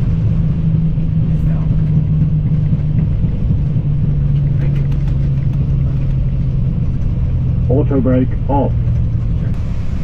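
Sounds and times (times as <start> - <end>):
engines rumbling: 0.0 - 10.0
low hum: 0.0 - 10.0.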